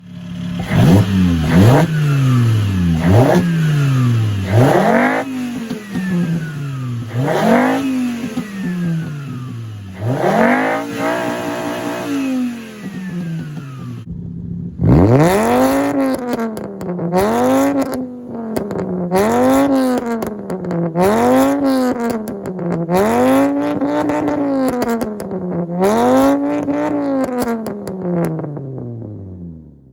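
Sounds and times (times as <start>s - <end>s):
car engine revving: 0.0s - 29.9s
exhaust pops and crackles: 14.8s - 29.1s.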